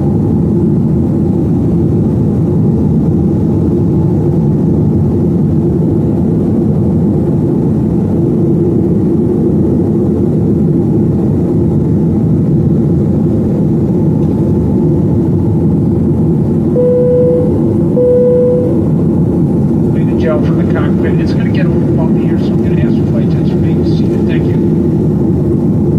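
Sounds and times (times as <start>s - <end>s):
airplane engine drone: 0.0s - 25.9s
cabin airflow: 0.0s - 25.9s
steady hum: 0.0s - 25.9s
short tones: 16.8s - 18.9s.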